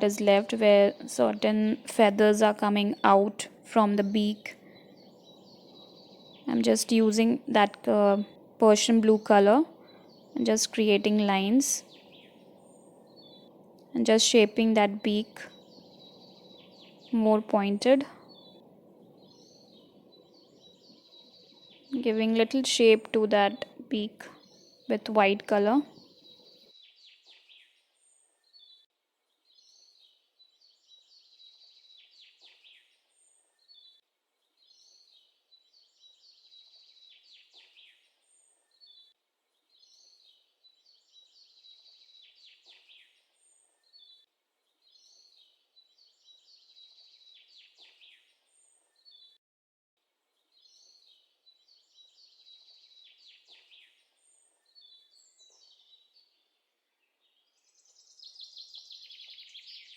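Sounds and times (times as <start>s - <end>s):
faint bird chirping: 0.0s - 49.4s, 50.3s - 59.9s.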